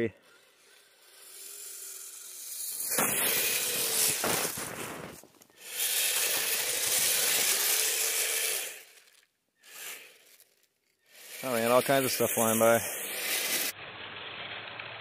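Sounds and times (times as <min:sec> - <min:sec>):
faint motor whine: 0:00.0 - 0:15.0
churned snow rushing hiss: 0:02.6 - 0:08.9, 0:11.2 - 0:13.7.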